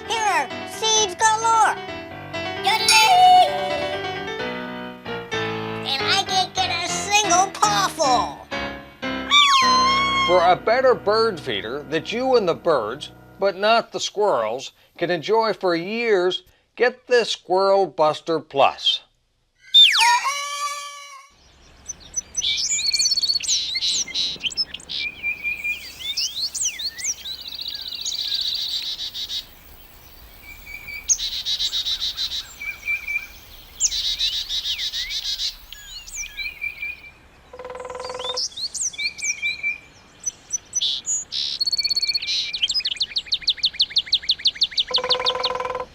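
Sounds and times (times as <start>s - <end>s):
harsh low bird call: 19.6s - 21.4s
songbirds chirping and singing: 19.6s - 45.9s.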